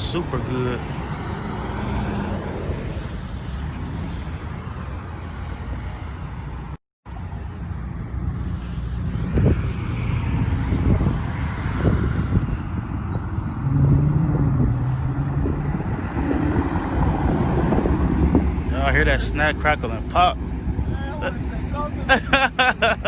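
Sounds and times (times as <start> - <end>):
car exhaust rumble: 7.2 - 23.0.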